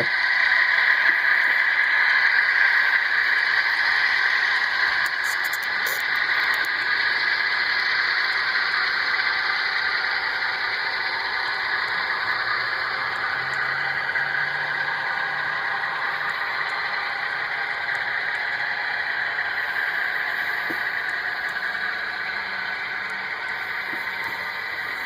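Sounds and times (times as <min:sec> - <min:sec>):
model train rattling on track: 0:00.0 - 0:25.0
faint clicks: 0:04.8 - 0:07.2, 0:19.4 - 0:25.0.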